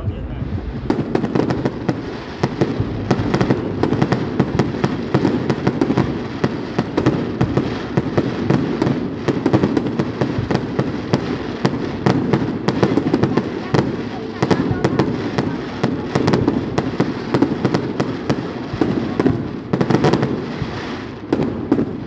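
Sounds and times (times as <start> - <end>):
continuous low rumble: 0.0 - 5.1
fireworks cracking: 0.0 - 22.0.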